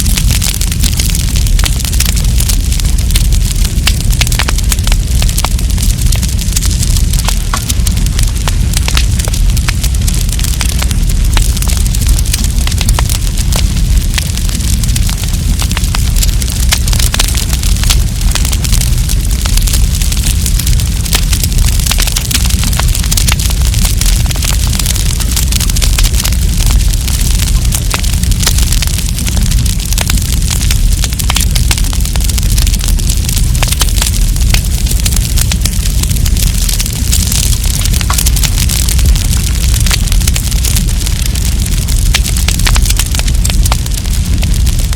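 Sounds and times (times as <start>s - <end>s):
campfire crackling and popping: 0.0s - 44.9s
low rumble of flames: 0.0s - 44.9s.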